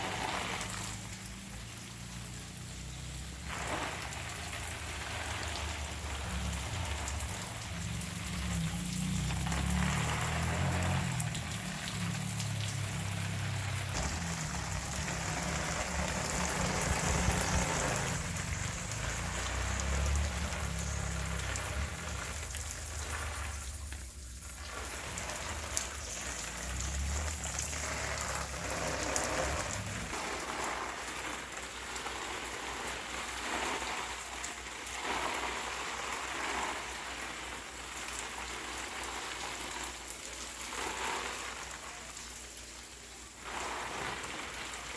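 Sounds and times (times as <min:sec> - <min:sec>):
rain pattering: 0:00.0 - 0:44.9
low rumble: 0:13.9 - 0:23.4.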